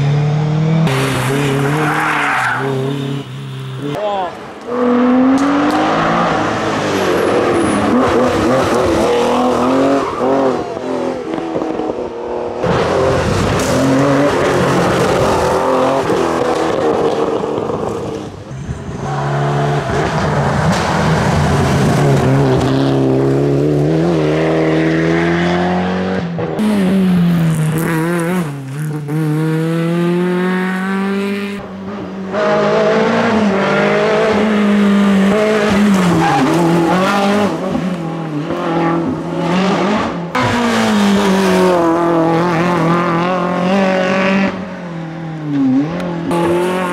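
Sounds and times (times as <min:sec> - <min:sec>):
rally car engines at full throttle: 0:00.0 - 0:46.9
tyre squeal: 0:01.3 - 0:03.6.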